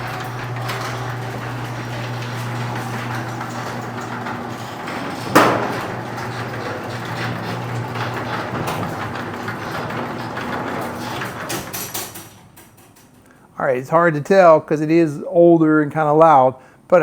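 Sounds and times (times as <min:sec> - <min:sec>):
garage door motor hum: 0:00.0 - 0:13.2
metal rollers rattling: 0:00.0 - 0:13.3
loud metal clank: 0:00.2 - 0:09.9.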